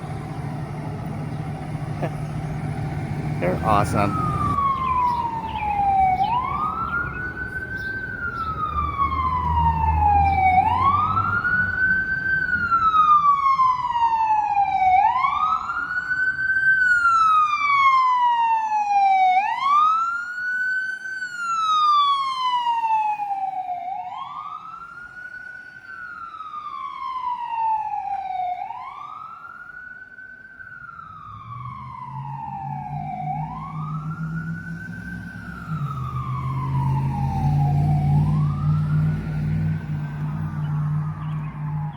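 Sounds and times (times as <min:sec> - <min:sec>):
heavy truck engine rumbling: 0:00.0 - 0:13.0
fire truck siren wailing: 0:00.0 - 0:41.9.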